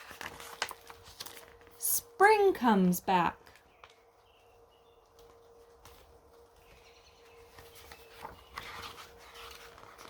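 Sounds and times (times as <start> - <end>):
paper rustling: 0.0 - 1.8, 5.2 - 10.0.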